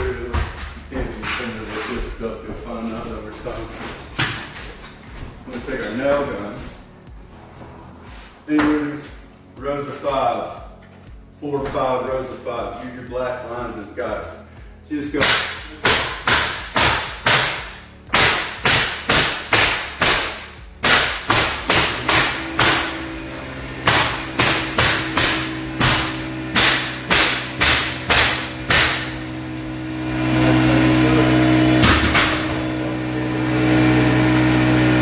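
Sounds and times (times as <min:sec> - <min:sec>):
air compressor humming: 0:00.0 - 0:09.8, 0:10.6 - 0:35.0
nail gun firing: 0:15.2 - 0:23.1, 0:23.8 - 0:29.3, 0:31.8 - 0:32.5.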